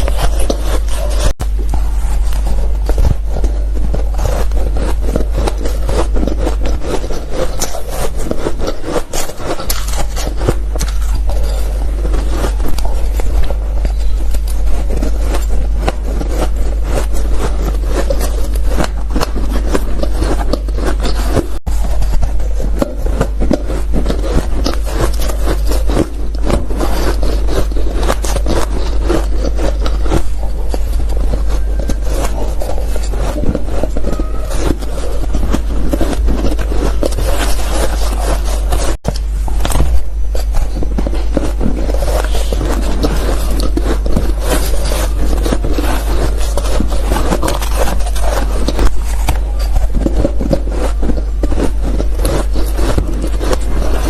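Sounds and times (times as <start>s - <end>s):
ice being chewed: 0.0s - 54.0s
low hum: 0.0s - 54.0s.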